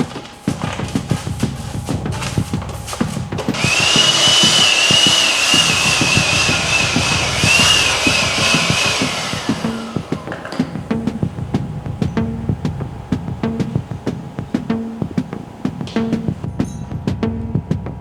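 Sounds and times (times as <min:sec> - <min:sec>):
power tool high whine: 0:02.9 - 0:11.2
light knocks: 0:09.0 - 0:12.2.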